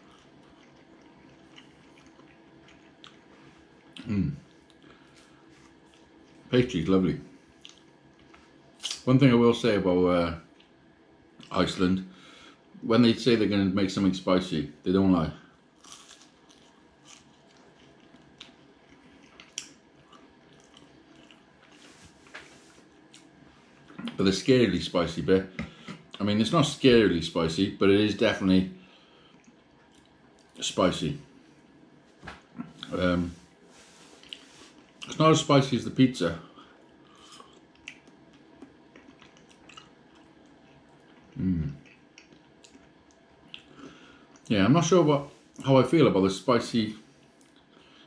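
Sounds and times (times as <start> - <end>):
person chewing: 0.0 - 6.5, 7.5 - 9.0, 15.8 - 24.2, 29.3 - 30.6, 33.7 - 35.2, 36.8 - 44.5.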